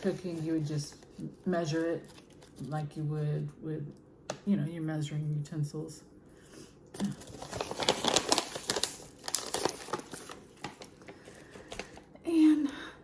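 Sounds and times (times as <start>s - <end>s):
plastic packaging crinkling: 0.0s - 2.8s, 7.0s - 12.1s.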